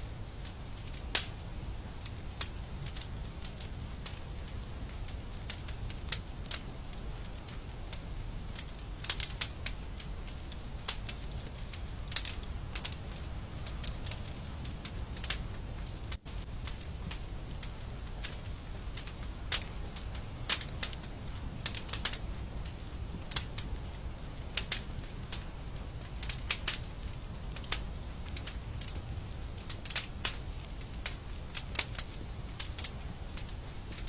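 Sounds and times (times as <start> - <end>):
fire crackling in a fireplace: 0.0 - 34.0.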